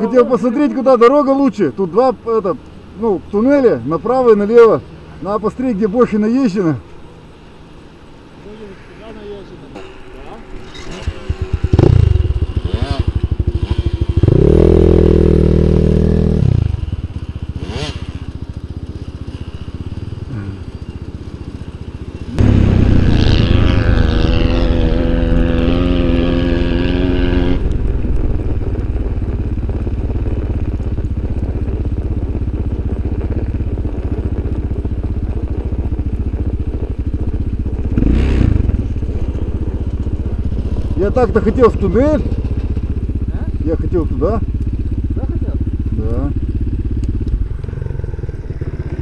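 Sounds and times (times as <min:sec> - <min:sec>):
small engine revving: 0:10.6 - 0:32.3, 0:36.8 - 0:44.4, 0:45.1 - 0:49.0.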